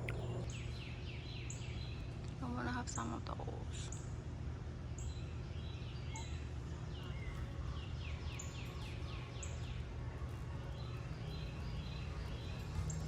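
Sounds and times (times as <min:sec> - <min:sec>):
descending bird notes: 0:00.0 - 0:04.1
birds chirping: 0:00.0 - 0:13.0.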